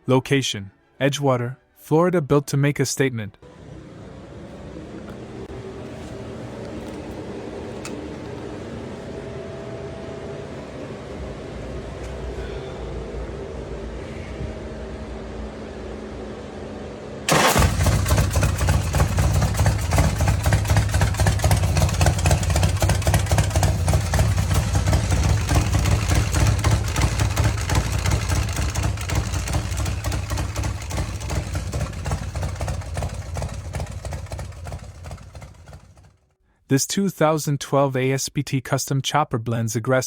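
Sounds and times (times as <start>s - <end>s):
motorcycle engine deep pulsing exhaust: 17.5s - 36.3s.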